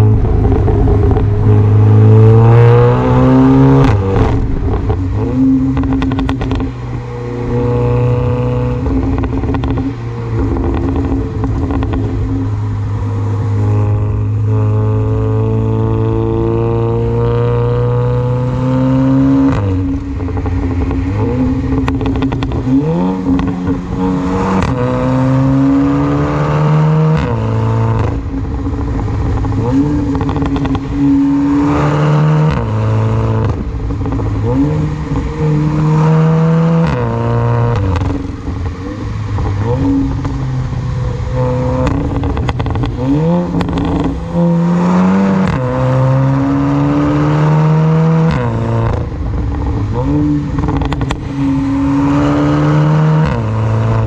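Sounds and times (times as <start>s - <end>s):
exhaust crackles and pops: 0.0s - 2.0s, 3.0s - 8.0s, 8.7s - 12.8s, 19.1s - 26.0s, 27.1s - 35.9s, 36.8s - 46.4s, 48.2s - 52.2s
car engine accelerating hard: 0.0s - 54.0s.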